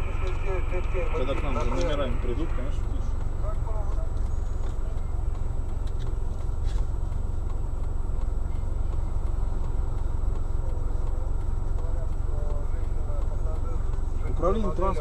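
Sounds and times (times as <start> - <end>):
car engine idling: 0.0 - 15.0
faint ticks: 3.1 - 15.0.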